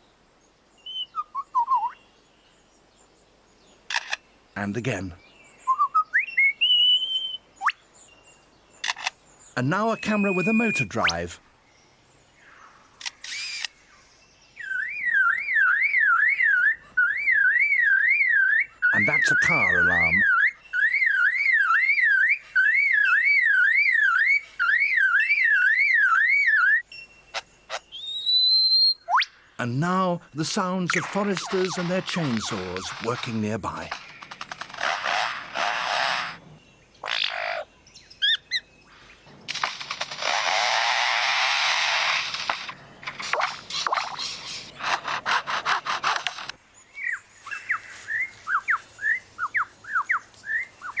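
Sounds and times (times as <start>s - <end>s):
bird mimicking car alarm: 9.8s - 11.2s, 14.6s - 29.3s
lyrebird mimicking chainsaw sawing: 29.9s - 36.4s.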